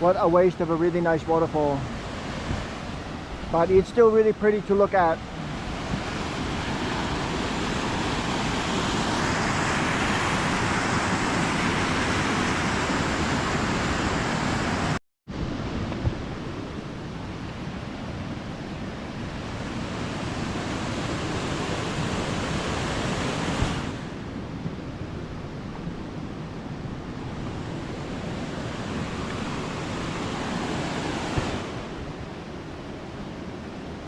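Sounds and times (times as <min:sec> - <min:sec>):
waterfall roaring: 0:27.3 - 0:32.1.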